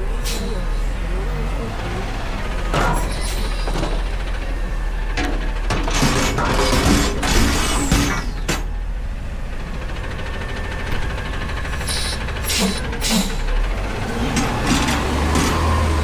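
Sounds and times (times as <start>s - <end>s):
truck engine idling: 0.0s - 16.0s
metallic clanks of lifting gear: 2.7s - 4.2s, 5.1s - 8.7s.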